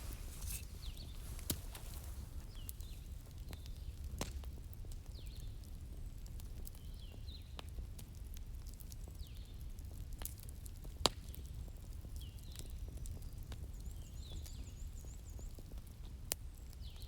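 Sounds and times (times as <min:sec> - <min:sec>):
wood fire crackling and popping: 0:00.0 - 0:12.8.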